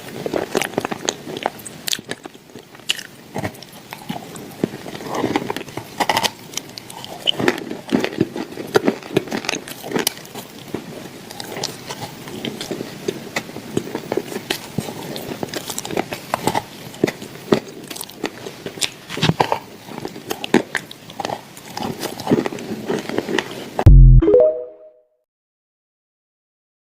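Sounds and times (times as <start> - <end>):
crunchy chewing: 0.0 - 23.8
loud low thump: 23.9 - 24.3
short ringing tone: 23.9 - 25.0.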